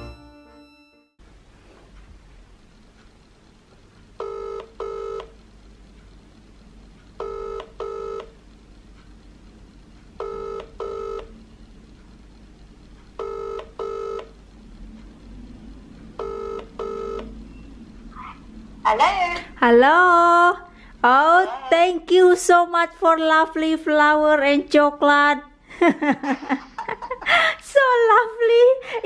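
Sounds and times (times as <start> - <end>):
phone ringback tone: 0.0 - 1.1, 4.2 - 5.3, 7.2 - 8.3, 10.2 - 11.3, 13.2 - 14.3, 16.2 - 17.3.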